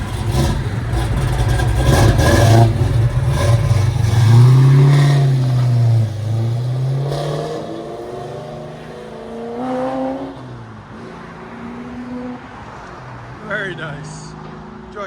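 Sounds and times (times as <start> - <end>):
car engine accelerating: 0.0 - 10.4.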